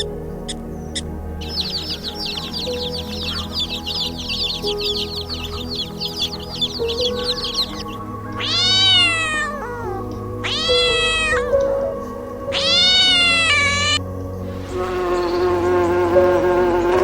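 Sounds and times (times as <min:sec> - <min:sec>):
background music: 0:00.0 - 0:17.0
cat meowing: 0:08.4 - 0:11.6, 0:12.5 - 0:14.0.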